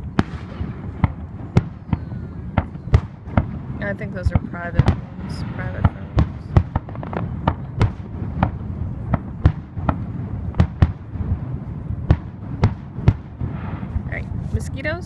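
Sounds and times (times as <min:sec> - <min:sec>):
fireworks bangs and cracks: 0:00.0 - 0:15.0
steady low rumble: 0:00.0 - 0:15.0.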